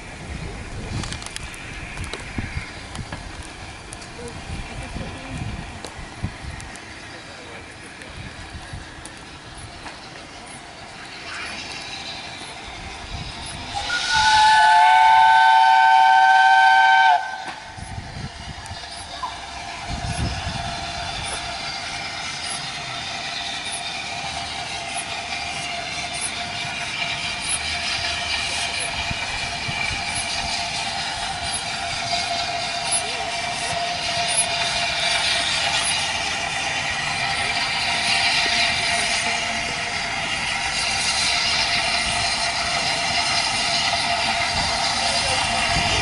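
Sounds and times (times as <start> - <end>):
train running: 0.0 - 46.0
steam locomotive whistle: 13.7 - 17.7, 26.3 - 46.0.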